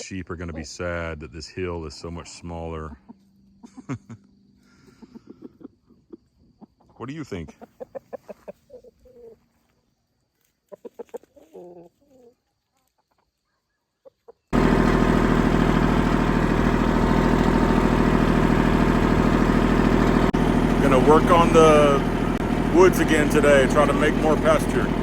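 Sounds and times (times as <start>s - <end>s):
chickens clucking: 4.8s - 14.6s, 19.9s - 25.0s
loud steady engine: 14.6s - 25.0s.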